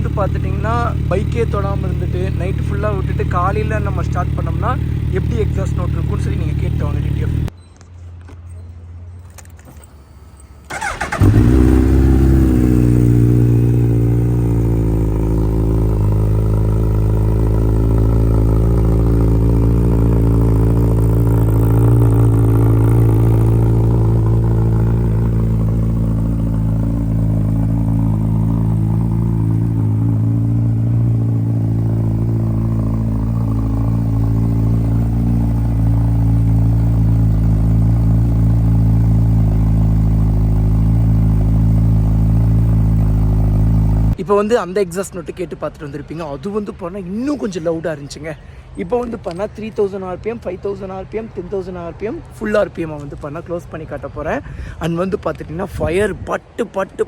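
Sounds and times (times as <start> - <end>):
motorcycle engine fast idle: 0.0 - 7.5, 10.7 - 44.2
motorcycle starter cranking: 9.3 - 35.9.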